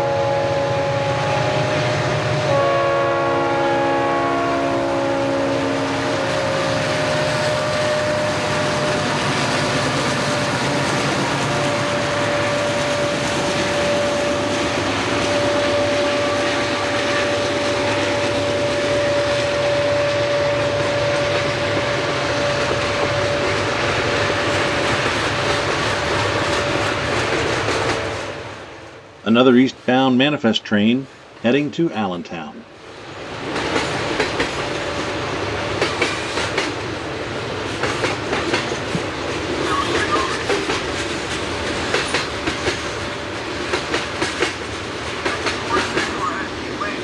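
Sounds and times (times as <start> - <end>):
locomotive horn: 0.0 - 23.8
freight train rumbling and rattling: 0.0 - 28.9, 32.5 - 47.0.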